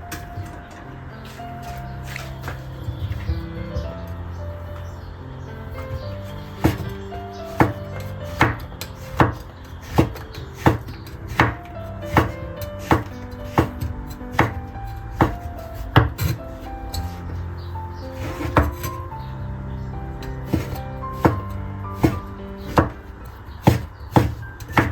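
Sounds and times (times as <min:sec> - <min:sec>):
background music: 0:00.0 - 0:24.9
knife chopping on cutting board: 0:06.6 - 0:16.4, 0:18.2 - 0:18.9, 0:20.4 - 0:23.0, 0:23.6 - 0:24.9.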